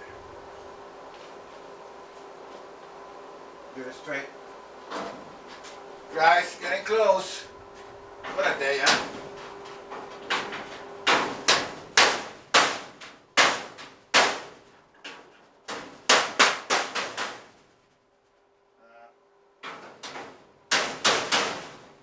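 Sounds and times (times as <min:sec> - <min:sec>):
hammer striking wood on metal: 0:10.4 - 0:14.5, 0:15.7 - 0:17.4, 0:19.7 - 0:21.8.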